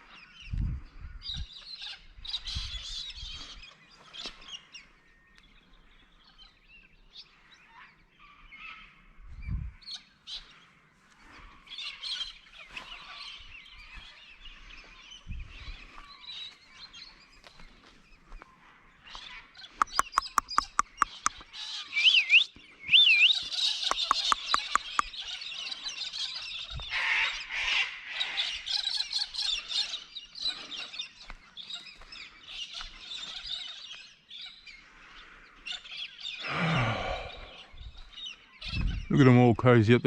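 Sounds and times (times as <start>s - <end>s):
low deep bird call: 19.2s - 30.9s, 34.5s - 39.1s
high bird chirps and whistles: 19.8s - 21.3s, 22.0s - 25.1s
rapid sharp clicks: 19.8s - 21.3s, 23.8s - 25.0s
flock of birds squawking: 23.3s - 39.0s.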